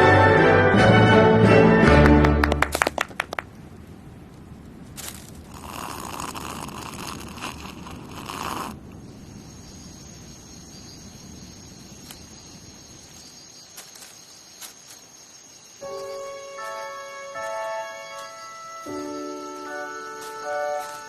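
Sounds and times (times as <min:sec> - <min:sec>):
rustling noise: 0:04.3 - 0:09.0, 0:11.8 - 0:21.0
high insect chirring: 0:05.0 - 0:21.0.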